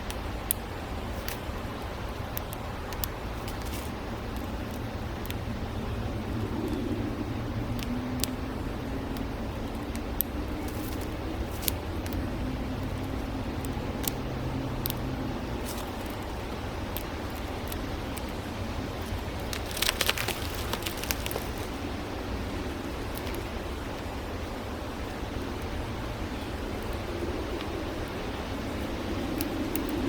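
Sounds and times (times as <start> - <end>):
road traffic: 0.0 - 30.0
vehicle engine hum: 3.9 - 30.0
sharp clicks: 9.2 - 21.8.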